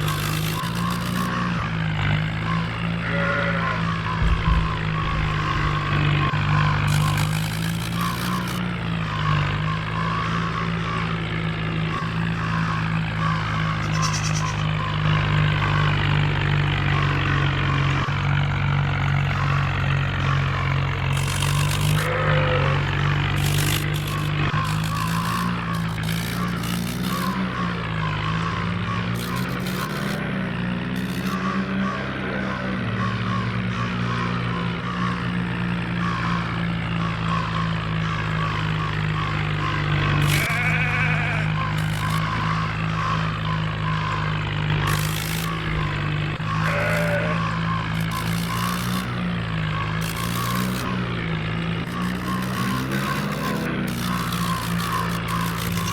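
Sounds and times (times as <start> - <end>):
tractor diesel engine running: 0.0 - 55.9
faint repeating chirp: 2.4 - 16.0.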